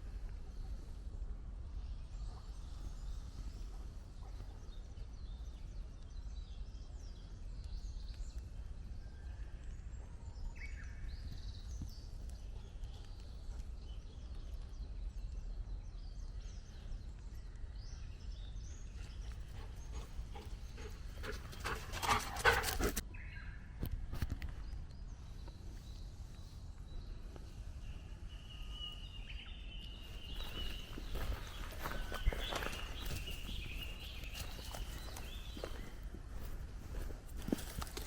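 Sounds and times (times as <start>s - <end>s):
bird chirps and calls: 27.8s - 36.5s.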